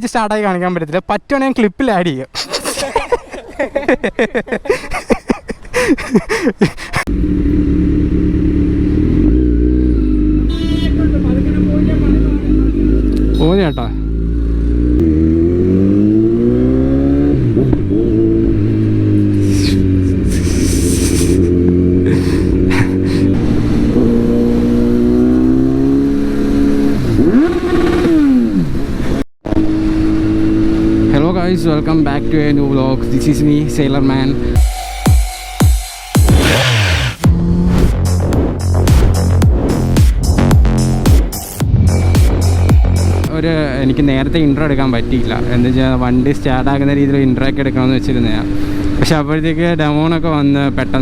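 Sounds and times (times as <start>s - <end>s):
motorcycle engine revving: 7.1s - 34.6s, 36.2s - 51.0s.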